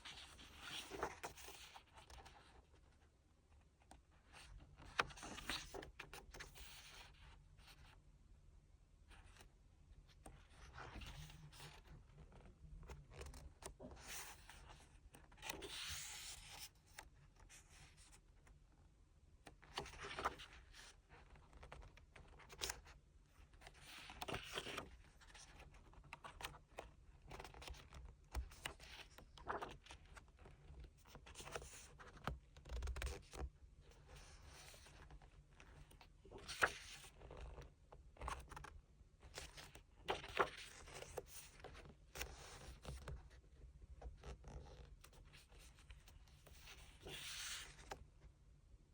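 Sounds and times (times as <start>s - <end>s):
paper rustling and scraping: 45.4s - 48.0s.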